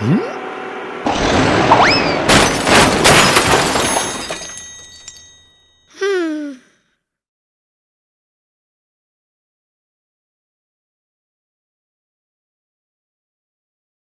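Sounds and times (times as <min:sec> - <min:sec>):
loud crash: 0:01.0 - 0:04.8.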